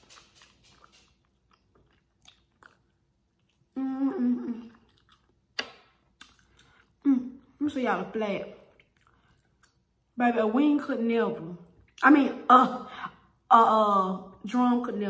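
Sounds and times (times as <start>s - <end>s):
soft chewing: 0.0s - 7.6s, 8.6s - 10.1s
wet mouth clicks: 4.4s - 7.0s.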